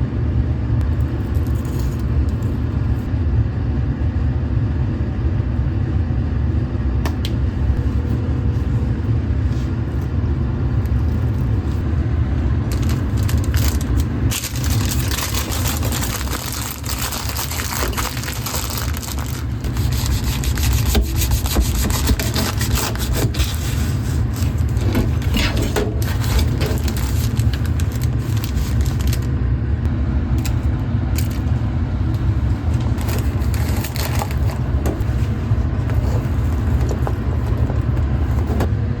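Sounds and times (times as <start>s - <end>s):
low hum: 0.0s - 39.0s
utensils clicking and scraping: 12.7s - 29.3s.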